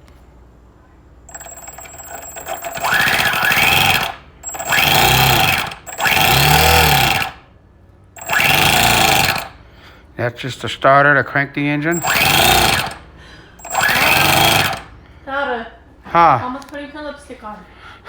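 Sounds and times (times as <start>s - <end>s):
electric starter cranking engine: 1.3s - 7.5s, 8.2s - 9.7s, 11.9s - 15.0s.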